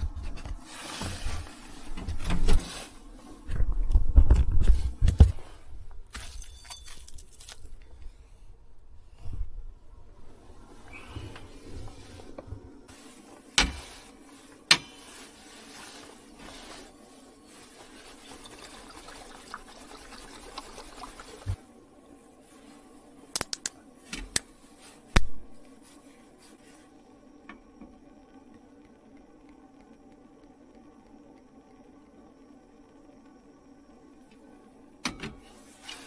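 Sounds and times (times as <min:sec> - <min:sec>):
steady hiss: 0:00.0 - 0:03.6, 0:10.1 - 0:36.0
clicks of small objects handled: 0:23.4 - 0:24.5.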